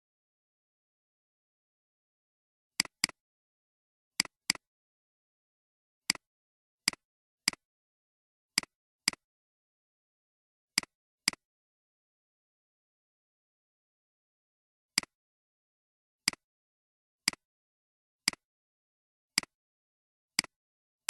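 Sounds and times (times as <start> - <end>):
computer mouse clicks: 2.8 - 3.2.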